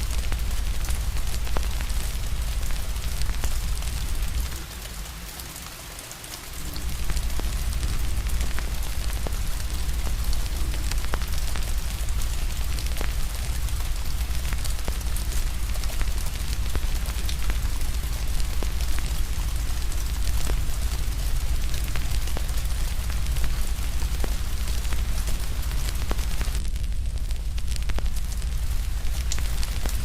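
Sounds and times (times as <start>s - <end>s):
fire crackling: 0.0s - 30.0s
rain hiss: 0.0s - 30.0s
deep low rumble: 6.6s - 30.0s.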